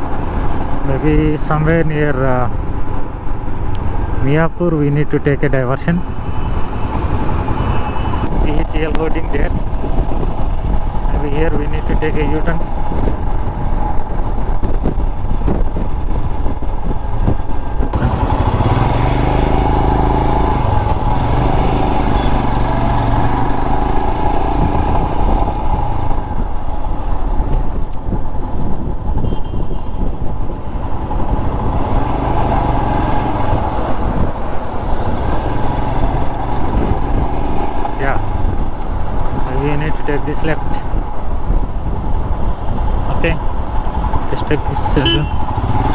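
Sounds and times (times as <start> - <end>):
wind noise on microphone: 5.9 - 45.9
motorcycle engine running: 12.6 - 28.6, 45.0 - 45.9.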